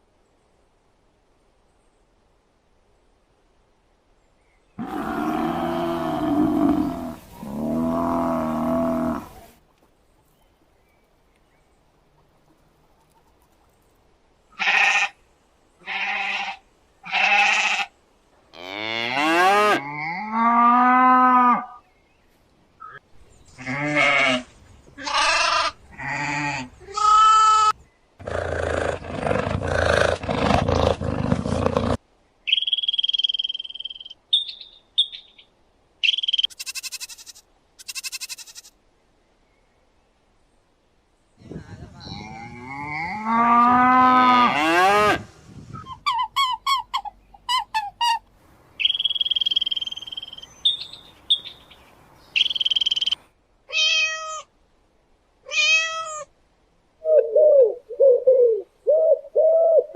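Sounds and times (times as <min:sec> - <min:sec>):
rough animal call: 0:04.8 - 0:09.6, 0:23.6 - 0:32.0.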